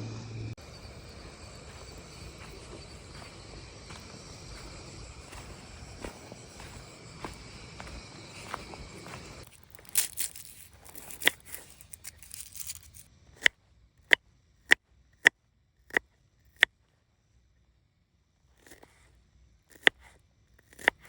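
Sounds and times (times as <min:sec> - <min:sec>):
rustling crinkling handling noise: 0:09.4 - 0:13.1.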